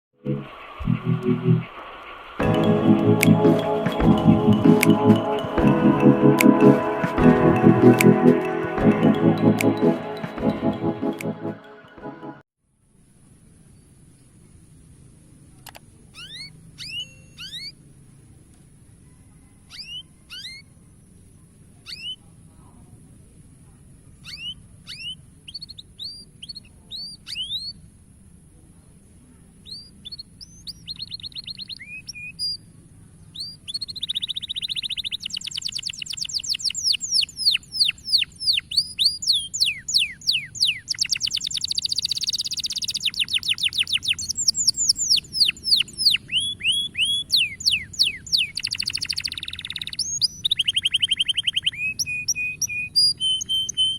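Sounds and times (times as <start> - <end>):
canary singing: 16.2 - 17.9, 19.2 - 22.3, 24.2 - 27.9, 29.6 - 53.9.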